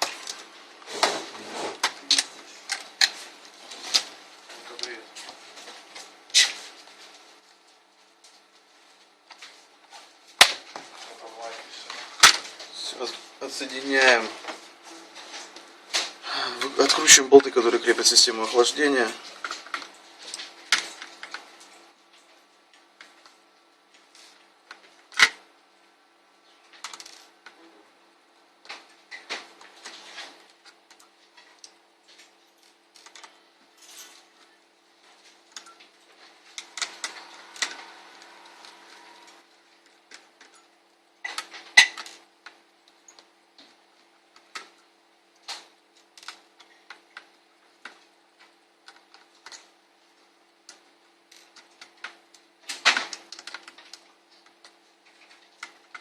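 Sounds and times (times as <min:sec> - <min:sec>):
scraping rustle: 0:00.8 - 0:01.8
laptop parts clicking: 0:24.7 - 0:25.4, 0:32.6 - 0:33.4, 0:45.4 - 0:49.8, 0:50.6 - 0:56.0.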